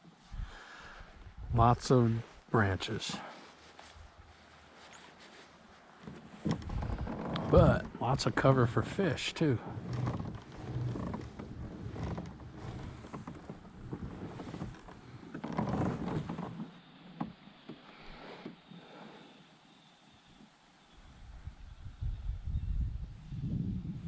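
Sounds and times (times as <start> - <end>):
wind on microphone: 0.3 - 1.8, 6.4 - 9.1, 21.0 - 24.0
knocks and rustling on kayak: 5.0 - 18.7.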